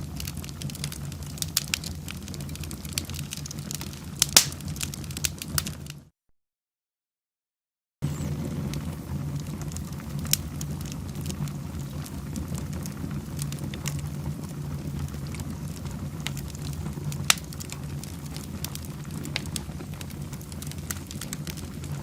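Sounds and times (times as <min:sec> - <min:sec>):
wood fire crackling and popping: 0:00.0 - 0:06.1, 0:08.0 - 0:22.0.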